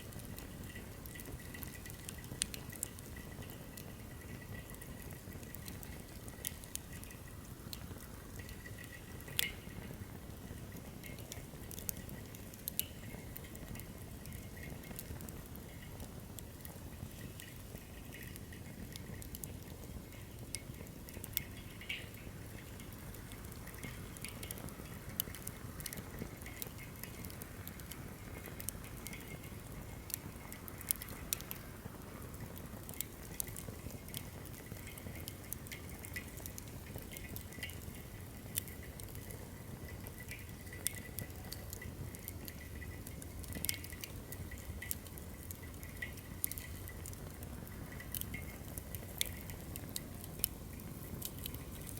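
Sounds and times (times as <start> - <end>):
firewood crackling and popping: 0.0 - 51.9
low fire noise: 0.0 - 51.9.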